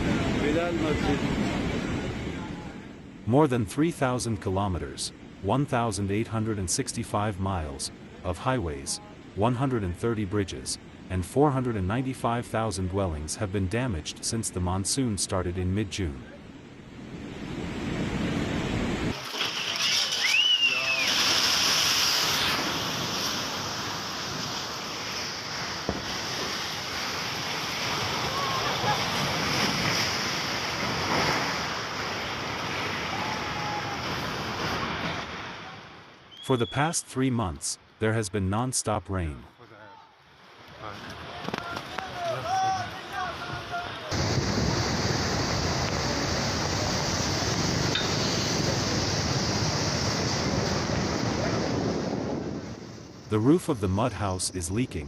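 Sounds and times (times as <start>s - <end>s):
floodwater rushing: 17.3s - 36.1s, 40.3s - 52.0s.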